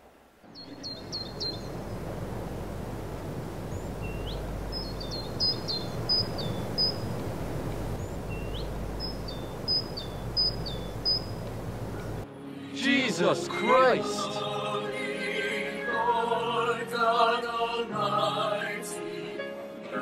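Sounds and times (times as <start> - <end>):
songbird chirping: 0.4 - 12.3
low outdoor rumble: 0.5 - 12.2.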